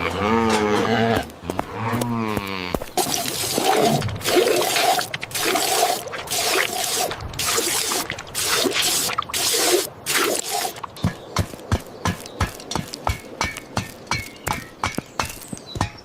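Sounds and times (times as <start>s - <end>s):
water splashing and sloshing: 2.8s - 13.6s.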